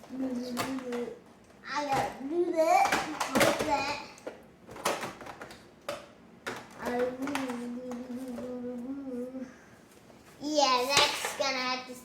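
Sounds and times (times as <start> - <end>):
knocks and clicks of handling: 2.8 - 8.6
child humming: 7.2 - 9.6.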